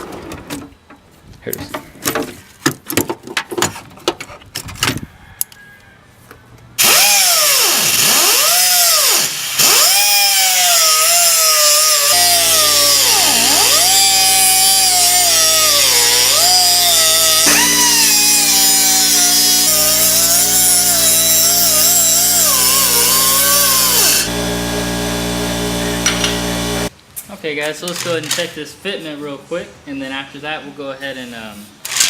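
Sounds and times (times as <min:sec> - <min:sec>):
cutoff wheel cutting steel pipe: 0:06.8 - 0:26.9.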